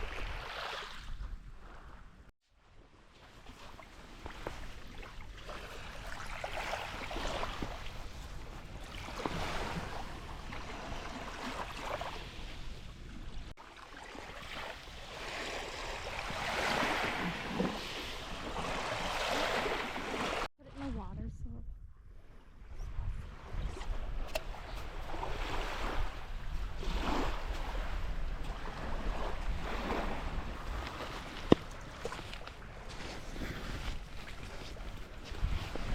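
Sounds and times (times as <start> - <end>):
waves breaking on beach: 3.2 - 20.5, 23.4 - 35.9
wind rumble on microphone: 20.6 - 35.9.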